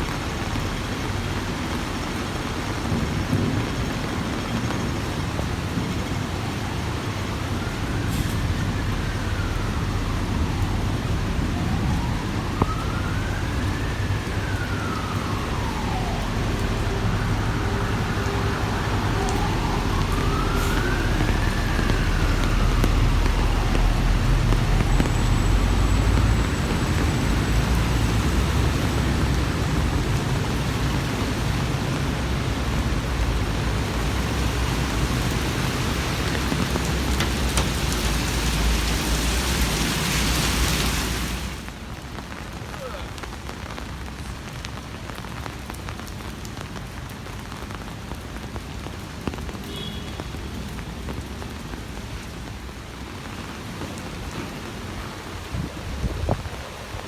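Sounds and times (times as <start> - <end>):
rain hiss: 0.0 - 57.0
road traffic rumble: 0.0 - 57.0
emergency siren wailing: 5.8 - 41.7.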